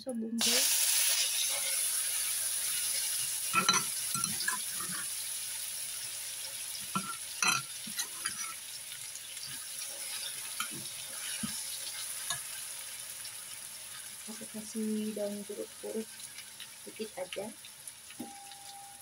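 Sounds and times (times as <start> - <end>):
paste sizzling in hot oil: 0.4 - 18.5
spatula scraping a wok: 1.0 - 5.3, 6.9 - 12.9.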